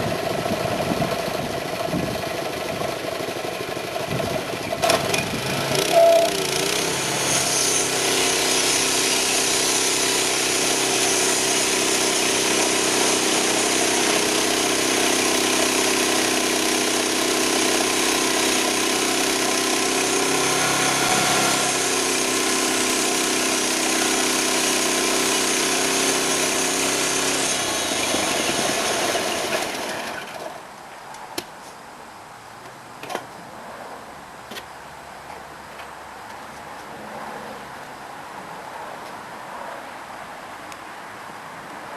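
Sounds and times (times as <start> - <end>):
sawmill engine running: 0.0 - 30.6.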